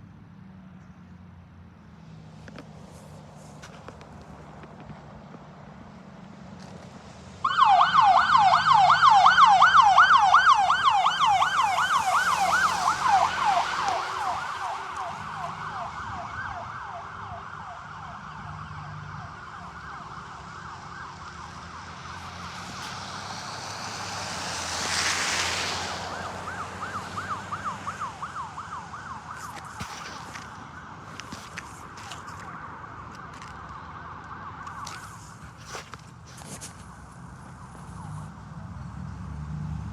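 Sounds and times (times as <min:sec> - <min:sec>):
electronic siren yelping: 0:07.4 - 0:22.2.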